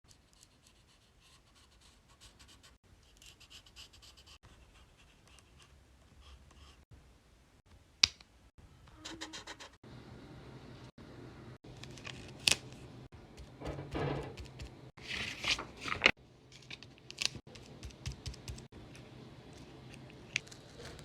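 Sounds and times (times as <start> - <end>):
paper rustling and crinkling: 15.0 - 17.5, 20.3 - 21.0.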